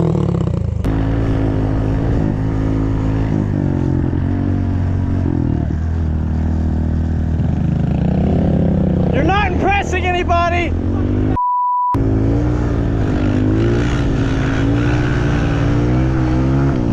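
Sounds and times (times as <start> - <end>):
motorbike engine running: 0.0 - 11.4.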